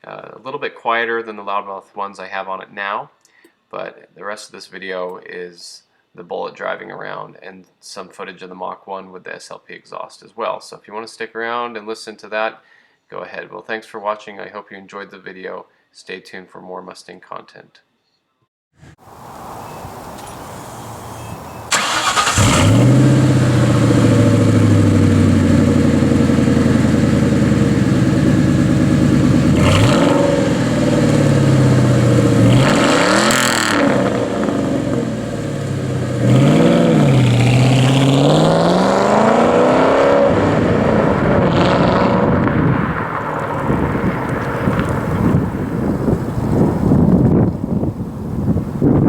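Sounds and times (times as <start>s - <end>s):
car engine starting and revving: 20.3s - 46.7s.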